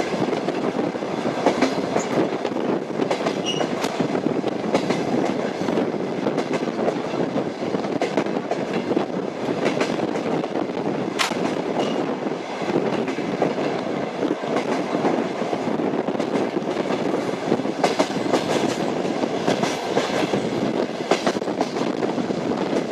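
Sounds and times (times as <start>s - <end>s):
train wheels rumbling on rails: 0.0s - 22.9s.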